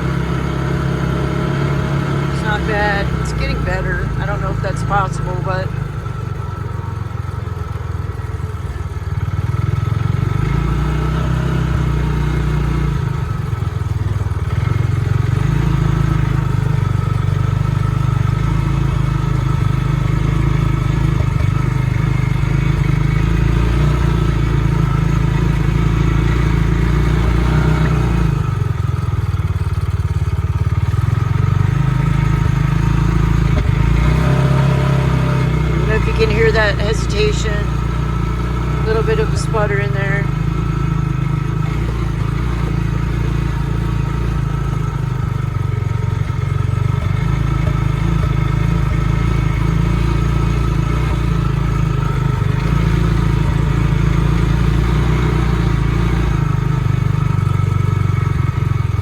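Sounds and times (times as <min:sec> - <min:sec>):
utility vehicle engine running: 0:00.0 - 0:59.0.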